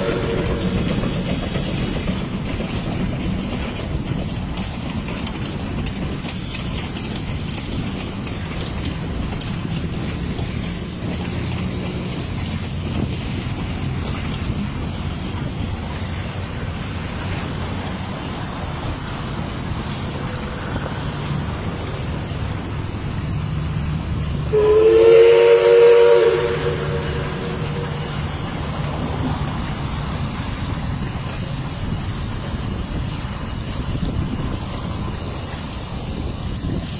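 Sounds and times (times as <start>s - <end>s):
steam whistle blast: 0.0s - 0.8s, 24.5s - 28.2s
steam locomotive rumbling: 0.0s - 36.9s.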